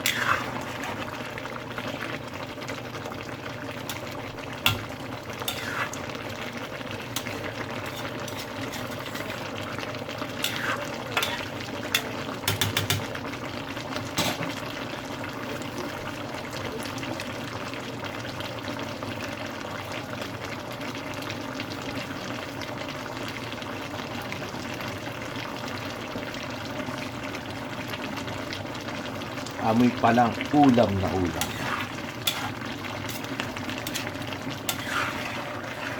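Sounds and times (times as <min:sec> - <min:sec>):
curry bubbling in a pot: 0:00.0 - 0:35.9.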